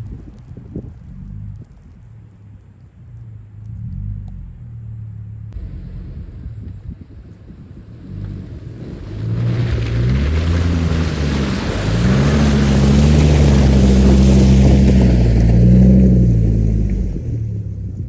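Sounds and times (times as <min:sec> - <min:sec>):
vehicle engine revving under load: 0:01.0 - 0:17.8.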